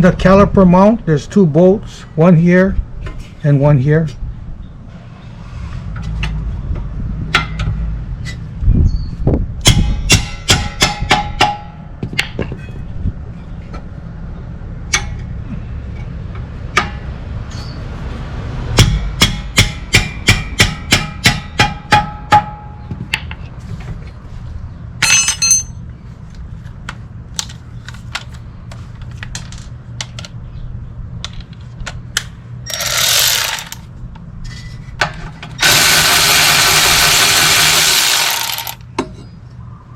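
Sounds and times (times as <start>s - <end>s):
ratchet clicking: 32.7s - 33.8s, 35.6s - 38.8s.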